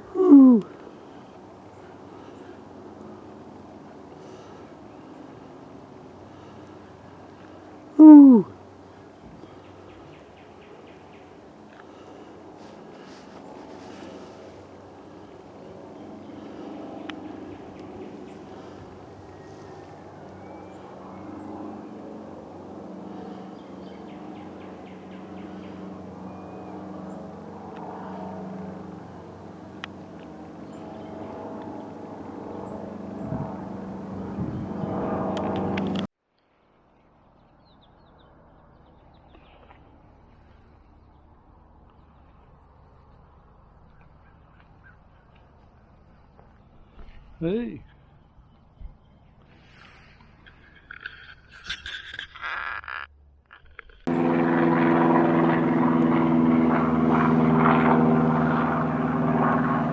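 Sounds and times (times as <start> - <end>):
engine drone: 0.0 - 36.1, 49.2 - 59.9
faint outdoor ambience: 0.0 - 59.9
bird chirping: 47.8 - 53.8.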